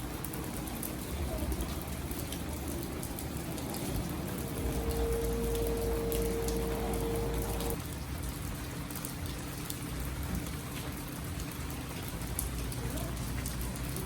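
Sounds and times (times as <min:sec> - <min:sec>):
steady rain falling: 0:00.0 - 0:14.0
hum with deep rumble: 0:01.1 - 0:07.8
faint low hum: 0:04.1 - 0:07.8.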